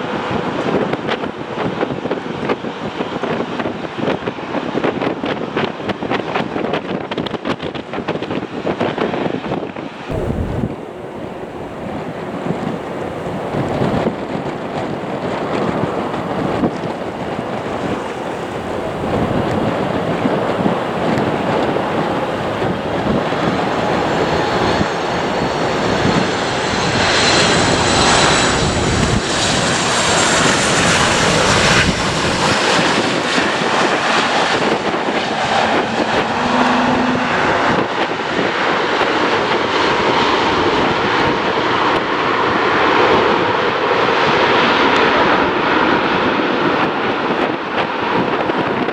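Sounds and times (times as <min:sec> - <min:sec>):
high thin whine: 0:10.1 - 0:32.6, 0:34.6 - 0:38.3
jet engines roaring: 0:10.1 - 0:48.6.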